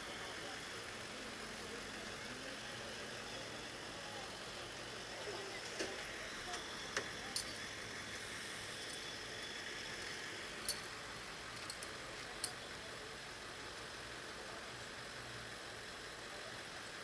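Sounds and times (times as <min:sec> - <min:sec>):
outdoor street hiss: 0:00.0 - 0:17.0.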